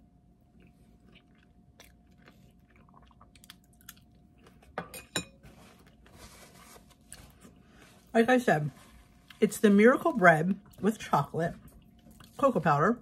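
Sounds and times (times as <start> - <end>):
person chewing: 0.4 - 4.8, 11.6 - 12.4
soft rustle: 5.4 - 9.5.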